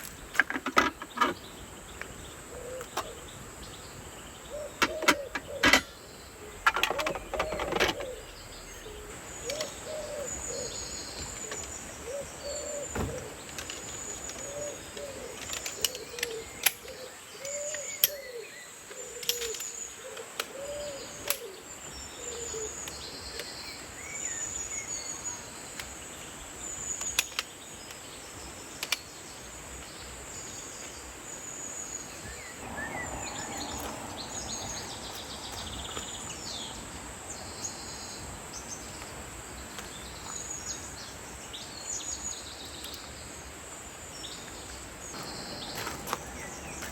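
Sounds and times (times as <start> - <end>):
sharp clicks and knocks: 0.0 - 1.4, 4.8 - 6.0, 6.6 - 8.2
bird hooting: 2.5 - 3.3, 4.5 - 13.4, 14.4 - 19.3, 20.0 - 21.6, 32.6 - 35.7.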